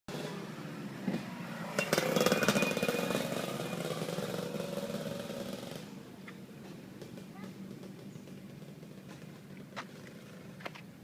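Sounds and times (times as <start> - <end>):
nitro rc engine revving: 1.6 - 5.8.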